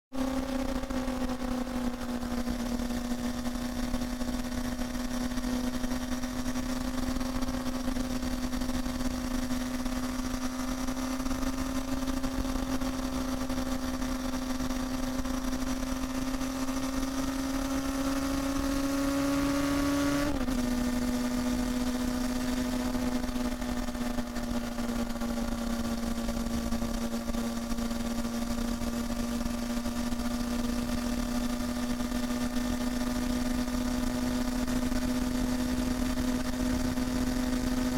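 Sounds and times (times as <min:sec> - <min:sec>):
motorcycle engine at high revs: 0:00.2 - 0:37.9.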